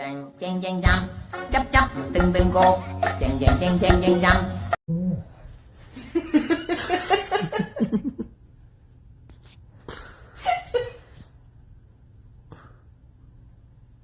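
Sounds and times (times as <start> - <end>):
person laughing: 6.2 - 8.3.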